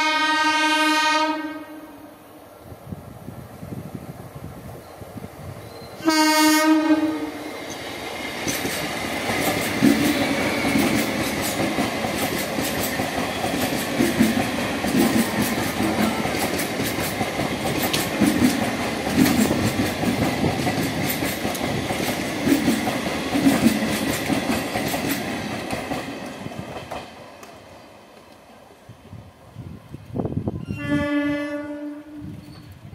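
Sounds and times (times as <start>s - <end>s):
train horn blast: 0.0s - 2.1s, 6.0s - 7.4s, 30.6s - 32.4s
train rumbling past: 0.0s - 32.9s
wheels clicking over rail joints: 7.6s - 28.5s.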